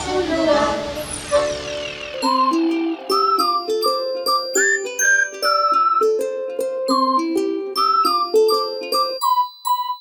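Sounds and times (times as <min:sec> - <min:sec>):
chime tones ringing: 0:02.1 - 0:06.2.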